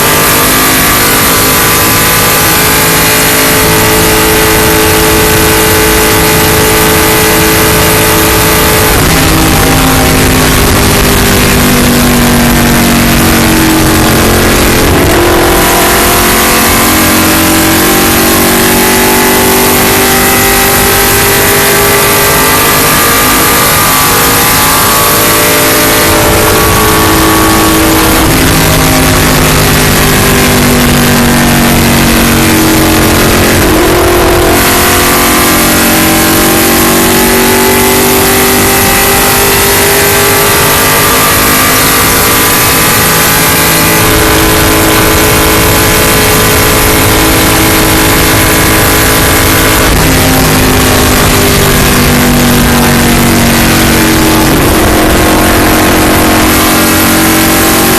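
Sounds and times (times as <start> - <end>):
race car engine at speed: 0.0 - 57.9
wind and road noise rush: 0.0 - 57.9.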